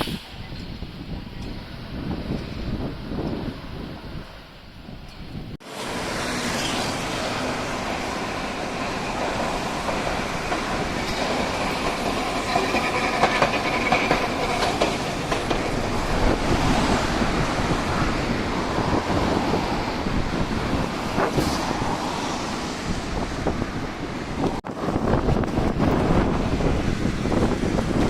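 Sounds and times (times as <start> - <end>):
wind on microphone: 0.0 - 5.6, 6.4 - 28.0
streetcar passing: 0.0 - 28.0
wheels clicking over rail joints: 6.9 - 21.4.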